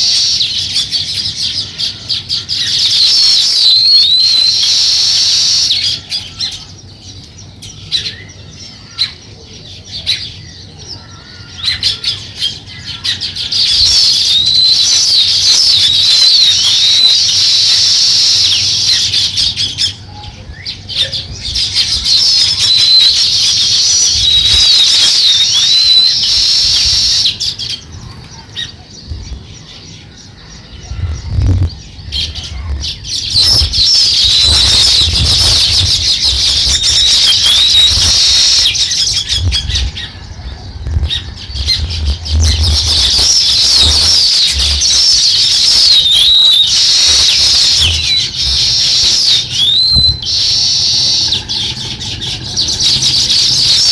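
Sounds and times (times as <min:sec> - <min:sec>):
small birds chirping: 0:00.0 - 0:53.9
wings fluttering: 0:21.3 - 0:27.4, 0:31.0 - 0:53.9.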